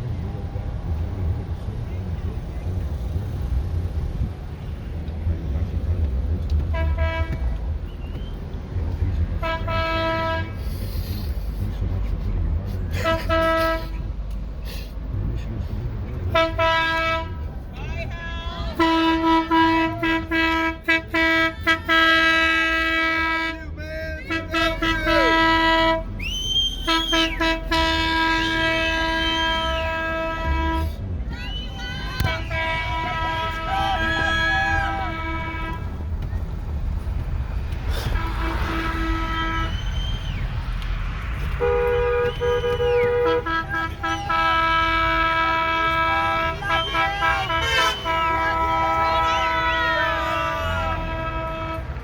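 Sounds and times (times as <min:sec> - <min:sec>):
engine rumble: 0:00.0 - 0:52.0
vehicle horn honking: 0:06.7 - 0:07.6, 0:09.4 - 0:10.6, 0:13.0 - 0:14.0, 0:16.3 - 0:17.5, 0:18.7 - 0:23.6, 0:24.3 - 0:26.1, 0:26.8 - 0:30.9, 0:32.1 - 0:36.0, 0:38.0 - 0:40.4, 0:41.5 - 0:52.0.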